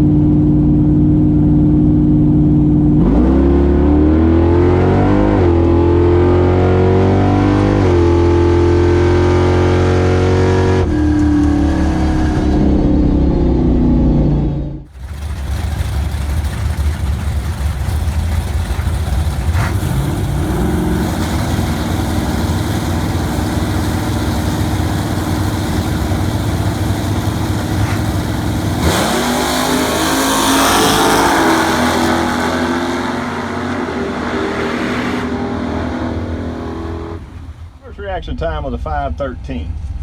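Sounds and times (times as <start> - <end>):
engine revving up: 2.9 - 37.9
car engine idling: 12.6 - 34.3.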